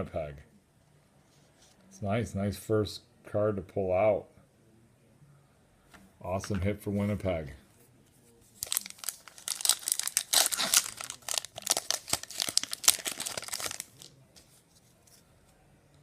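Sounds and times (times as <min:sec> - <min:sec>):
card pack wrapper tearing: 0:08.6 - 0:14.2.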